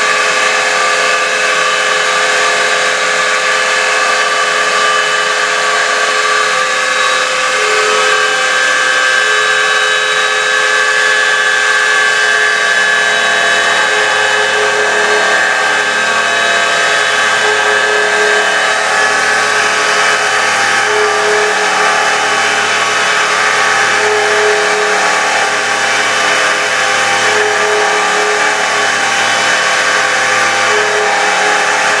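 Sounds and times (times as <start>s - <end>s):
bright machine tone: 0.0s - 32.0s
cnc machine drilling: 0.0s - 32.0s.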